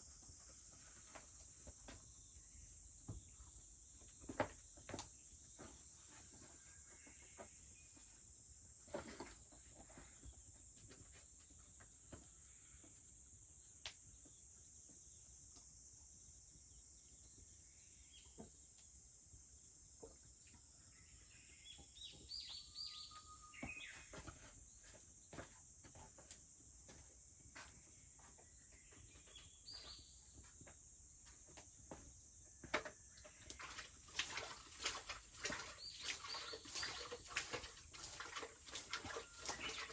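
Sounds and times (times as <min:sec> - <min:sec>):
cicadas droning: 0:00.0 - 0:39.9
bird chirps: 0:20.9 - 0:25.0, 0:28.2 - 0:30.4.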